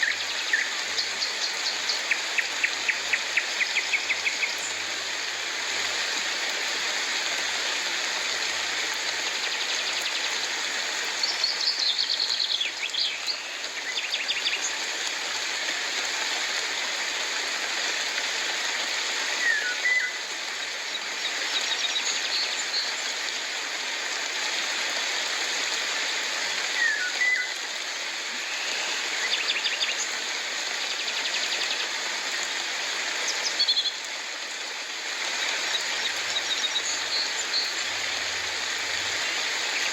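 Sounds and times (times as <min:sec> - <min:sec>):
rain hiss: 0:00.0 - 0:39.9
bird whistling: 0:19.4 - 0:20.2, 0:26.8 - 0:27.5.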